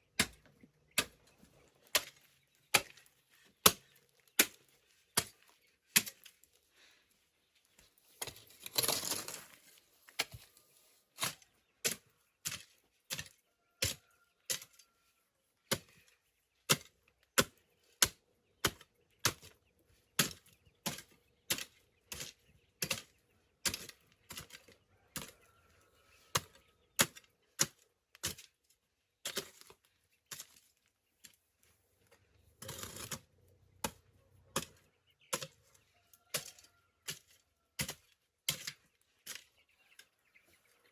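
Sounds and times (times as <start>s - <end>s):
hand tool chopping: 36.3s - 39.4s.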